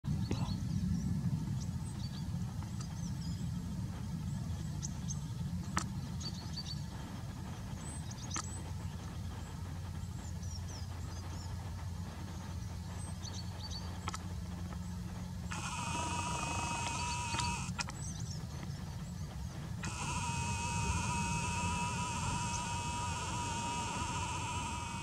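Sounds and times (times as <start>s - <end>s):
small birds chirping: 0.1s - 25.0s
steady low rumble: 0.1s - 25.0s
sharp clicks: 15.4s - 18.0s, 19.8s - 25.0s.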